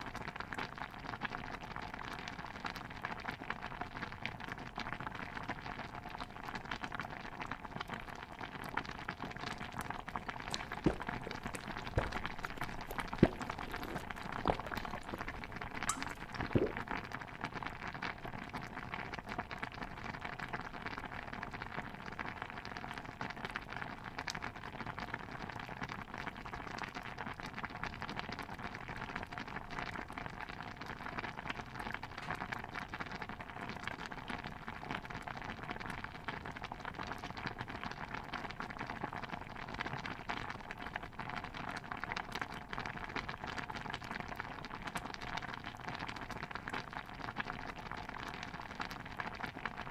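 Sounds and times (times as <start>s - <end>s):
stew simmering and bubbling: 5.0s - 23.7s, 29.0s - 49.9s.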